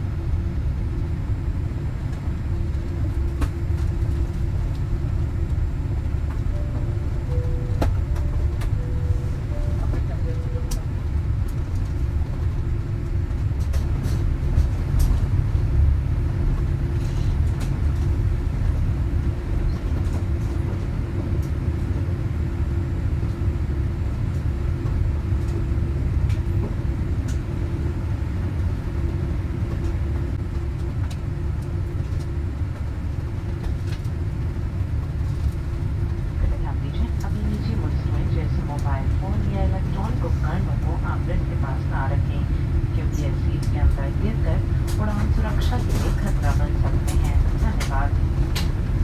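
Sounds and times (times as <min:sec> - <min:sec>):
aircraft cabin rumble: 0:00.0 - 0:49.0
steady hum: 0:35.4 - 0:49.0.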